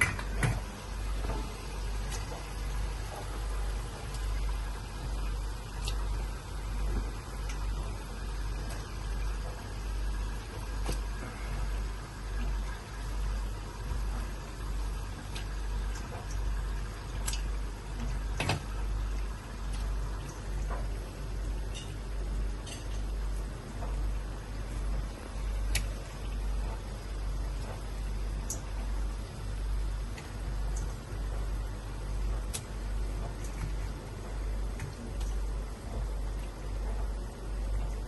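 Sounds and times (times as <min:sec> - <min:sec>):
water boiling in a pot: 0:00.0 - 0:38.0.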